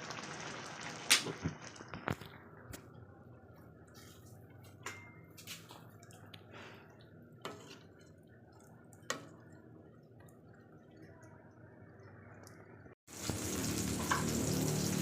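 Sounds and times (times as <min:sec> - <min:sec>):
faint sharp clicks or drips: 0:05.8 - 0:07.2, 0:08.0 - 0:13.0.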